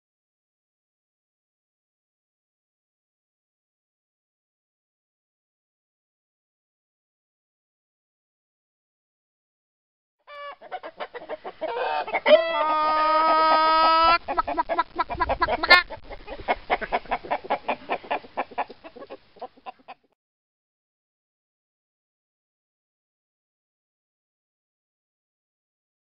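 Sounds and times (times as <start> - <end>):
rooster crowing: 10.3 - 10.8, 11.6 - 14.2
chicken clucking: 10.3 - 20.2.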